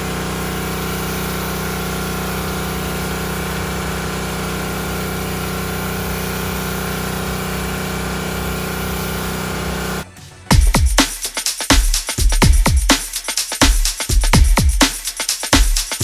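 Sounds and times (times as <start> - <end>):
pressure washer engine droning: 0.0 - 10.0.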